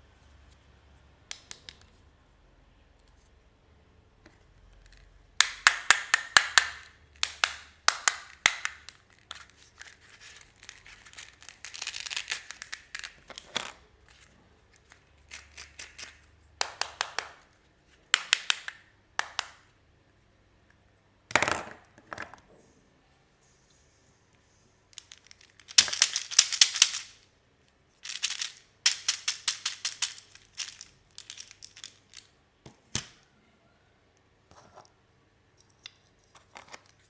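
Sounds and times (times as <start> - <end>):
wrapper crinkling: 8.2 - 14.2, 25.0 - 27.2, 28.0 - 32.3.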